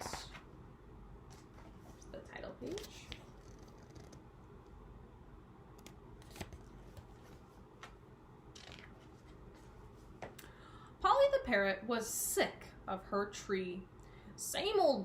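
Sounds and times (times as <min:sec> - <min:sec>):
book page turning: 0:05.8 - 0:07.5, 0:08.6 - 0:09.4.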